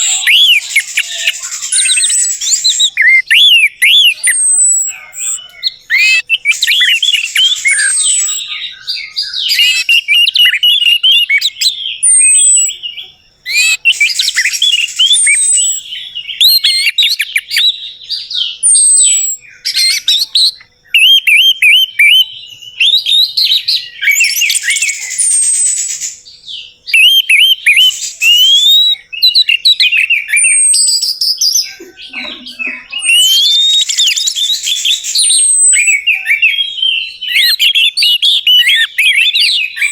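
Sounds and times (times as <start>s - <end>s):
thrush singing: 0.0s - 4.3s.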